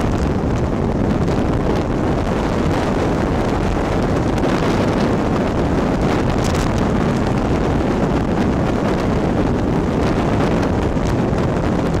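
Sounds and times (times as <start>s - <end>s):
motorcycle road and engine noise: 0.0s - 12.0s
wind rushing over microphone: 0.0s - 12.0s.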